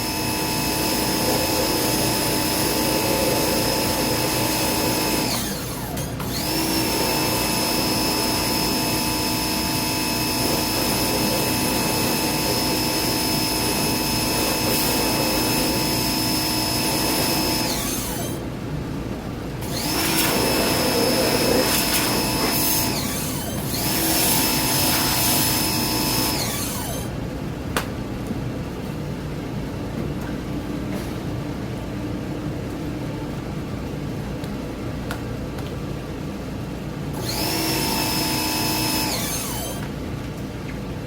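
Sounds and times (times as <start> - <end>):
electric motor whine: 0.0 - 18.4, 19.6 - 27.1, 37.2 - 39.8.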